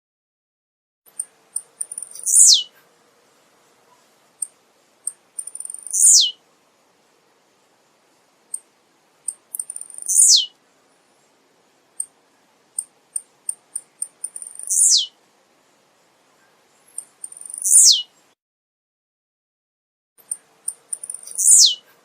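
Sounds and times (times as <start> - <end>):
bird singing high ticks and sweep: 1.1 - 2.9, 3.9 - 6.4, 8.5 - 15.2, 16.4 - 18.4, 20.2 - 22.0.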